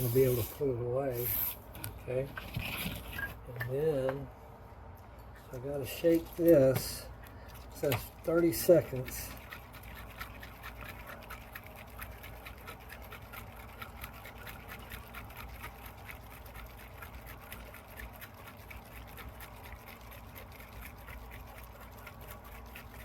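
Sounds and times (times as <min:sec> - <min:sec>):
aerosol can rattling when shaken: 0:05.8 - 0:23.0.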